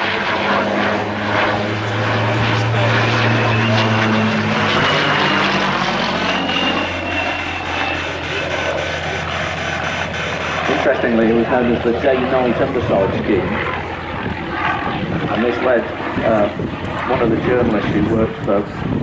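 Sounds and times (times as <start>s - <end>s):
propeller plane engine passing: 0.0s - 19.0s.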